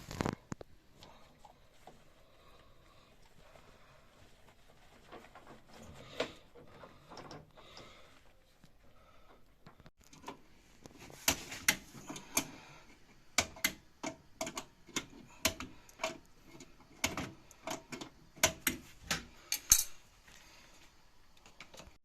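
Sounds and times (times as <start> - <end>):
sharp clicks and light knocks: 13.4 - 20.0.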